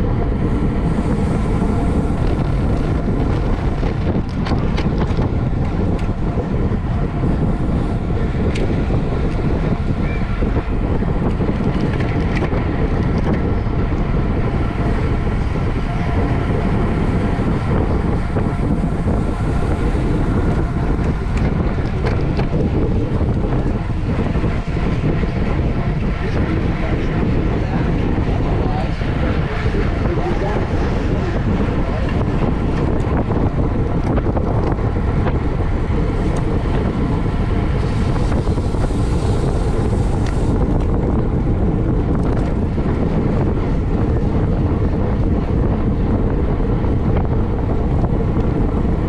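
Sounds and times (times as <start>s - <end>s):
low rumble: 0.0s - 49.0s
wind buffeting microphone: 0.0s - 49.0s.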